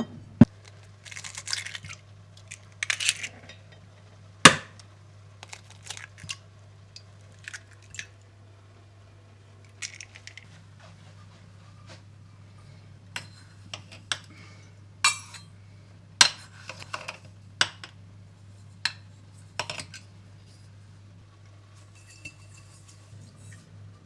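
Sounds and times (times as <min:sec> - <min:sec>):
steady low hum: 0:00.0 - 0:24.0
dishes and cutlery clinking: 0:15.1 - 0:15.5, 0:21.8 - 0:23.6.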